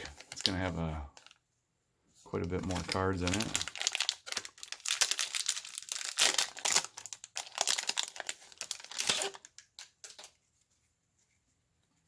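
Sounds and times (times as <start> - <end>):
wrapper tearing and crinkling: 0.0 - 1.4, 2.6 - 10.3.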